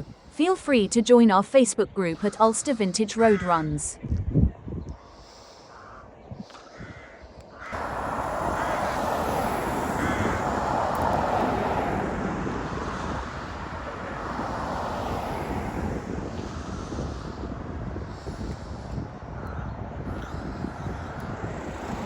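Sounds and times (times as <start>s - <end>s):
wind buffeting microphone: 0.0s - 0.9s, 3.6s - 22.0s
tractor engines running: 7.8s - 22.0s.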